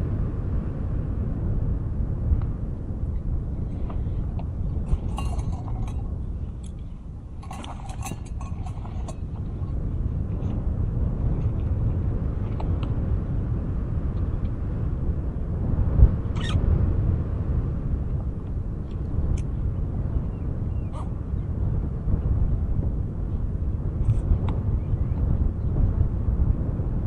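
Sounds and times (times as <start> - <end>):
wind buffeting microphone: 0.0 - 27.0
small clinking sounds: 4.9 - 9.4.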